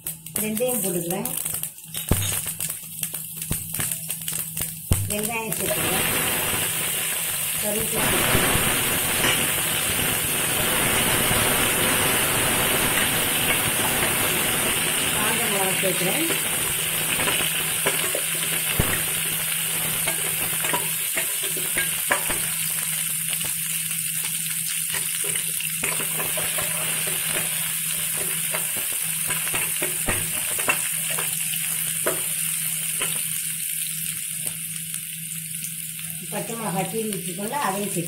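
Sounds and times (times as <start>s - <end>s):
onions sizzling in hot oil: 0.0s - 38.0s.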